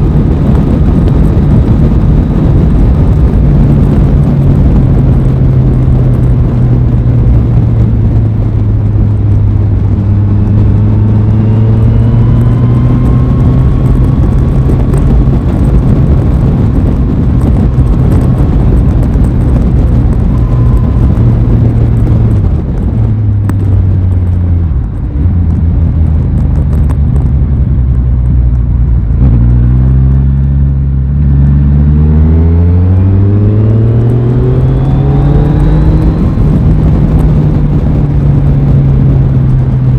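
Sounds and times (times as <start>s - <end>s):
motorcycle engine running: 0.0s - 39.9s
rushing noise: 31.2s - 39.7s.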